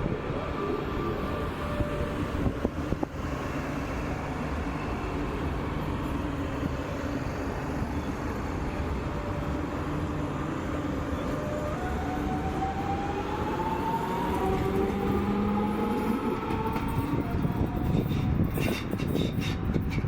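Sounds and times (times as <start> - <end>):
electric train rumble: 0.0 - 20.0.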